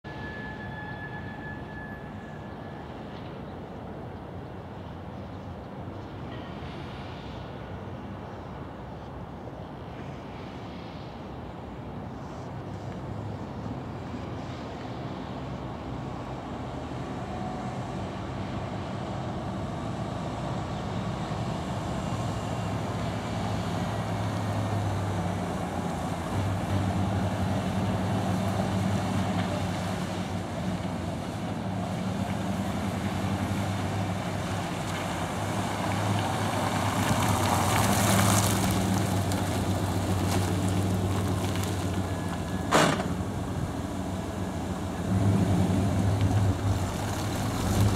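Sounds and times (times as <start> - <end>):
pickup engine humming: 21.1 - 47.9.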